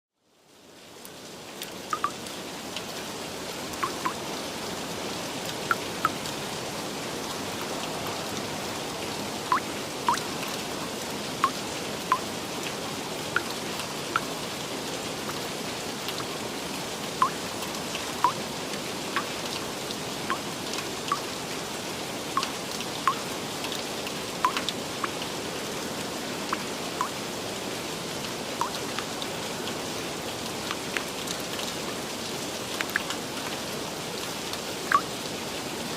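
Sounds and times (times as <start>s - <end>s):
steady rain hiss: 0.2s - 35.9s
drops plinking: 2.0s - 2.2s, 3.8s - 4.2s, 9.5s - 10.2s.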